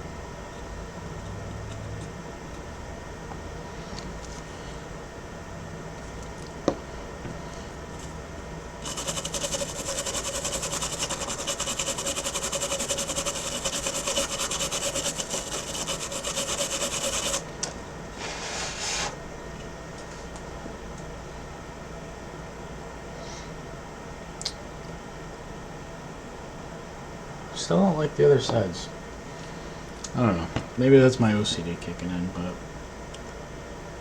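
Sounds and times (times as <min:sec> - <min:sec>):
brush scrubbing circuit board: 0:08.8 - 0:17.4.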